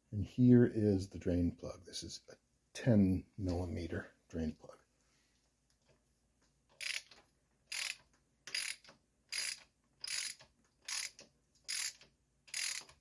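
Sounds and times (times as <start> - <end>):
ratchet wrench clicking: 6.8 - 13.0.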